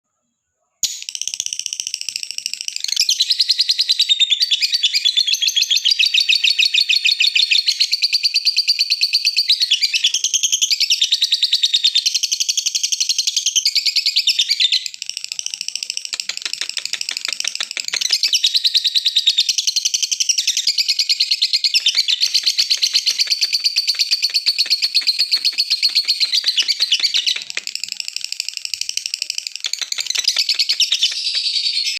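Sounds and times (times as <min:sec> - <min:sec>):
lovebird chirping: 0:00.8 - 0:31.9
lovebird chattering trill: 0:14.6 - 0:31.9.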